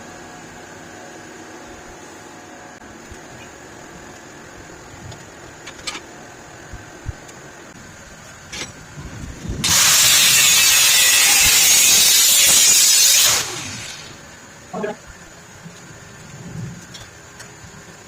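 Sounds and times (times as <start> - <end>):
angle grinder grinding metal: 9.6 - 14.2.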